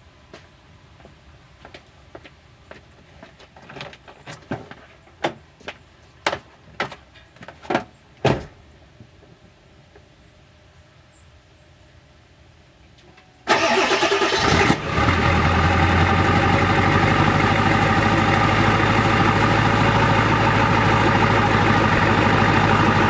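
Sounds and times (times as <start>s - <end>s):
diesel engine idling: 13.5s - 23.0s.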